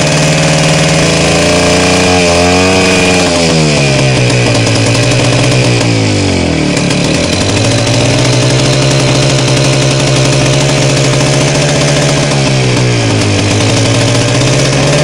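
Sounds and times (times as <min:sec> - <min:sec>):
two-stroke engine running loudly: 0:00.0 - 0:15.0.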